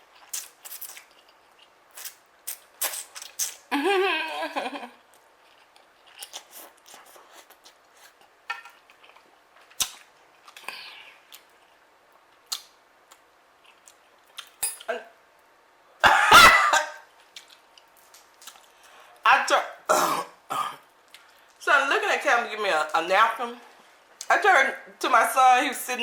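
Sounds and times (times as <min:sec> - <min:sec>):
soft chewing and mouth noises: 0:00.0 - 0:03.7, 0:05.0 - 0:15.0, 0:17.1 - 0:19.3, 0:20.9 - 0:21.6
person coughing: 0:16.0 - 0:17.0, 0:19.9 - 0:20.8.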